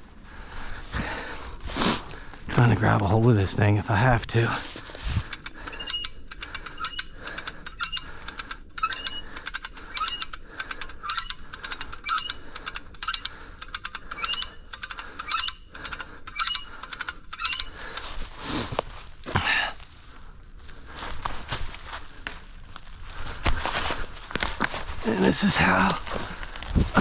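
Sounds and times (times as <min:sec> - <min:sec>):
ratchet pawl clicking: 0:05.3 - 0:18.1
short rising squeak: 0:12.1 - 0:12.4, 0:14.2 - 0:14.6, 0:15.2 - 0:15.6, 0:16.3 - 0:16.7, 0:17.3 - 0:17.7.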